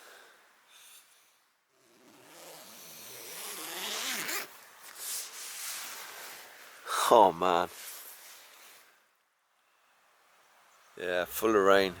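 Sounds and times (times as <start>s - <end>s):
tent zip being pulled: 1.7s - 6.8s.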